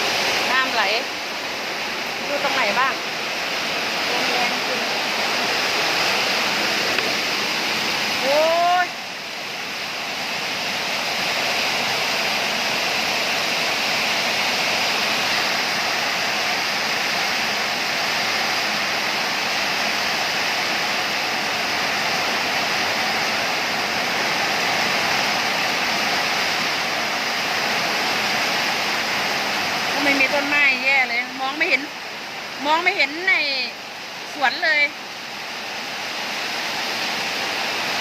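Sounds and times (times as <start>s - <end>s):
strong wind: 0.0s - 30.2s
heavy rain: 0.0s - 38.0s.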